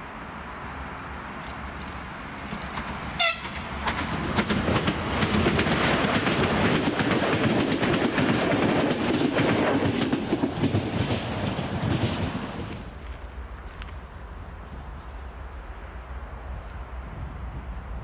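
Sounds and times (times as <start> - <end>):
train wheels clattering over rail joints: 1.8 - 12.9.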